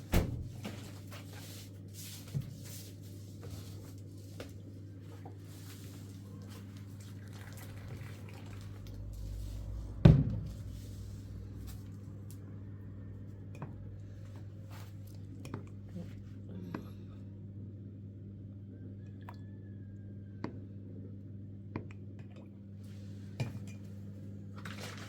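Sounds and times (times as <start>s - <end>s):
steady low hum: 7.8s - 24.6s
heavy thump: 10.0s - 10.6s.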